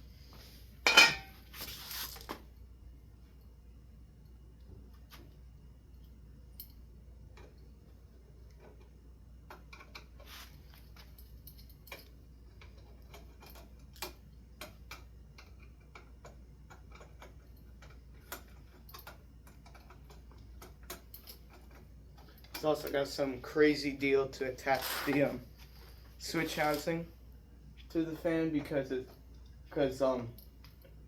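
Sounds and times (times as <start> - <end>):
low steady hum: 0.0 - 31.0
small metal hardware clinking: 6.0 - 6.8, 10.9 - 14.8.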